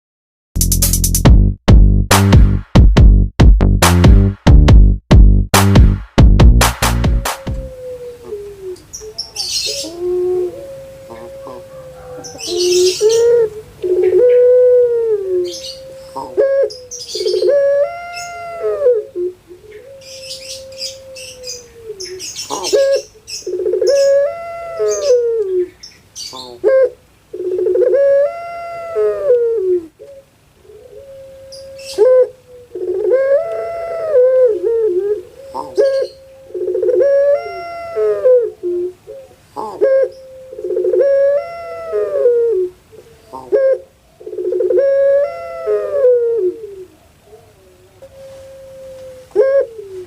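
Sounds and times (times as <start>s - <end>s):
dove cooing: 7.4s - 50.0s
small birds chirping faintly: 7.6s - 44.8s.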